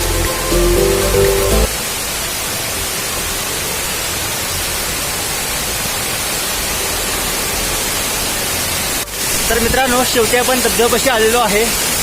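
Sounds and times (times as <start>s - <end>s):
background music: 0.0s - 1.9s
waterfall rushing: 0.0s - 12.0s.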